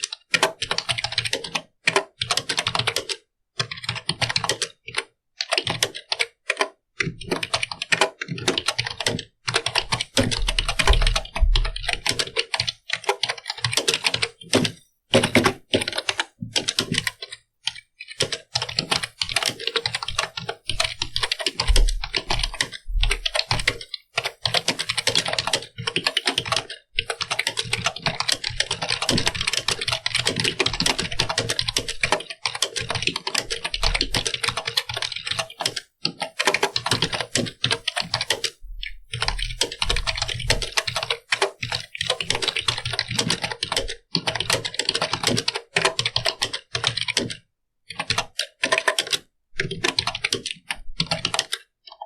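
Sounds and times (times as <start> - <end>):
keyboard typing: 0.0 - 52.0.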